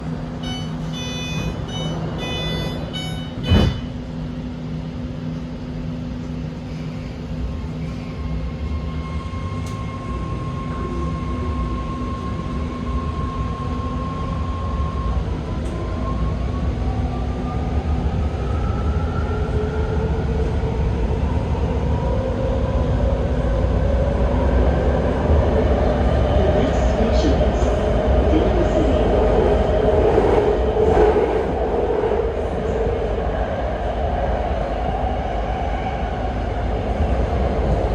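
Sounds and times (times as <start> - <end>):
train rumble: 0.0 - 37.9
short repeated beeps: 0.4 - 4.0
train motors whining: 0.4 - 4.0.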